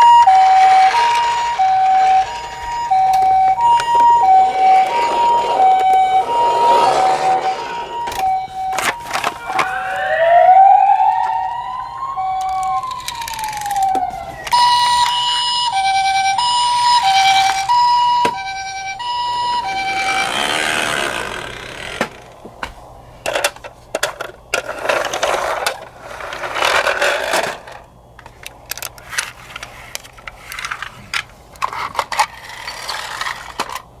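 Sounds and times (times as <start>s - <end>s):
toy siren hi-lo: 0.0s - 21.1s
toy siren wail: 0.0s - 21.1s
rustling and clicking of toys: 8.2s - 9.9s, 12.3s - 15.2s, 23.2s - 34.0s.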